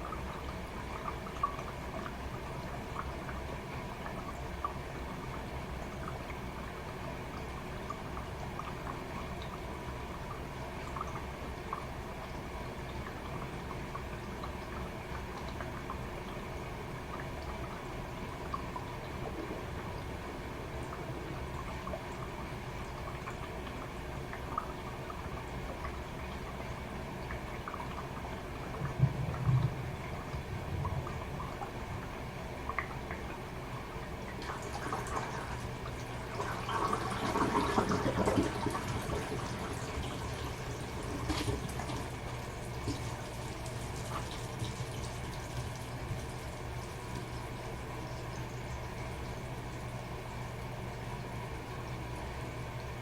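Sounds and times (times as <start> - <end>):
water rushing in tub: 0.0 - 50.6
washing machine running: 0.0 - 53.0
water drips and splashes: 0.0 - 53.0.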